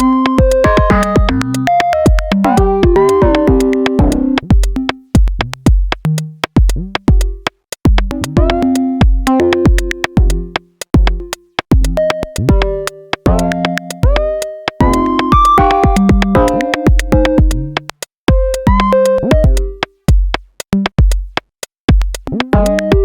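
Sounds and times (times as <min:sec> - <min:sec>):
synth notes stepping and gliding: 0:00.0 - 0:05.1, 0:08.0 - 0:19.9
drum machine kick pulses: 0:00.0 - 0:23.0.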